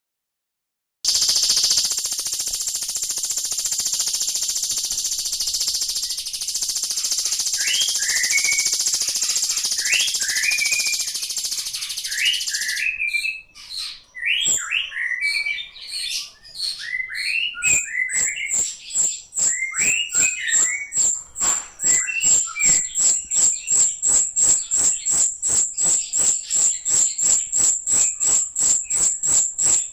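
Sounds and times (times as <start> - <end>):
steady high hiss: 1.1 - 11.6
bird sharp repeated notes: 1.1 - 13.0, 17.6 - 29.9
bird chirping: 1.1 - 29.9.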